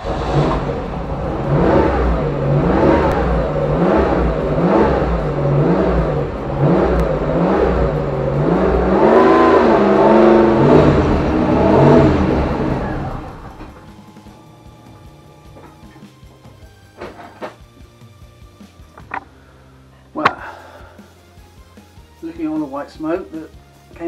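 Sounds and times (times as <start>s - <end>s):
car engine revving: 0.0s - 17.6s.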